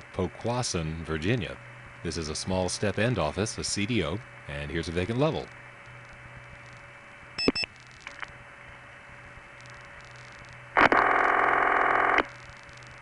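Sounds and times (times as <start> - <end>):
telephone line noise: 10.2 - 12.4.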